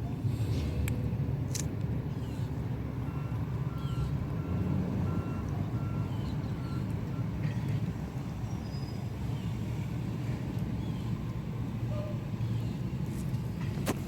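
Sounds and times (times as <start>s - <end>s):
backup alarm beeping: 3.0s - 7.5s.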